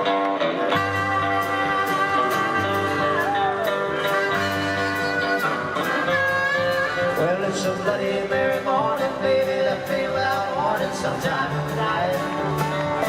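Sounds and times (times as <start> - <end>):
bass guitar: 0.0 - 13.0
guitar with bending notes: 0.0 - 13.0
drum beat with cymbals: 0.8 - 13.0.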